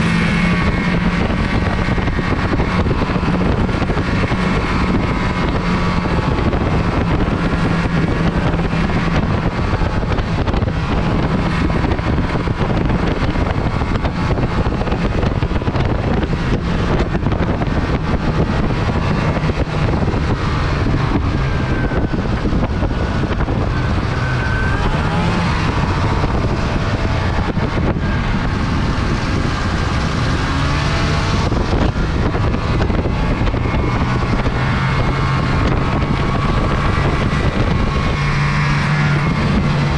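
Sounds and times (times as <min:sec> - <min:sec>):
snowmobile engine running: 0:00.0 - 0:39.9
wind noise on microphone: 0:00.0 - 0:39.9.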